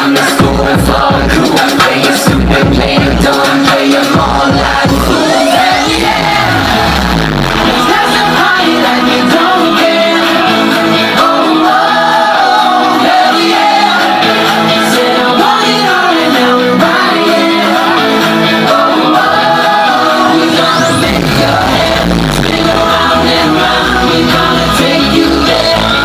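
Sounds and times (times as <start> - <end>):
live pop song with singer: 0.0 - 26.0.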